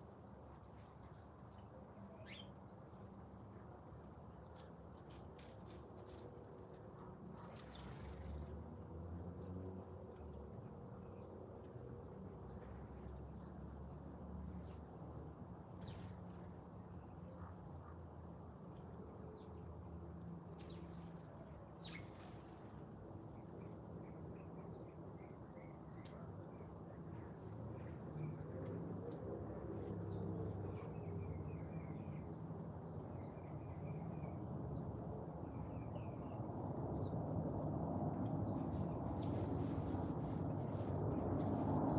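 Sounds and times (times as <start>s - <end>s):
faint bird chirps: 2.0s - 2.6s
small birds chirping: 2.0s - 2.7s, 20.5s - 22.8s.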